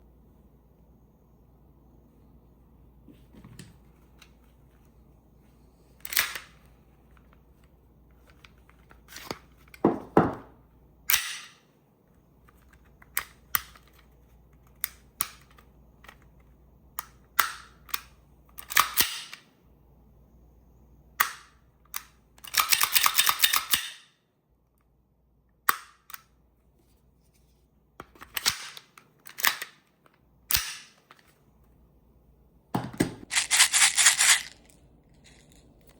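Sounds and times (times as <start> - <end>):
airsoft pistol snaps and clicks: 30.5 - 30.9.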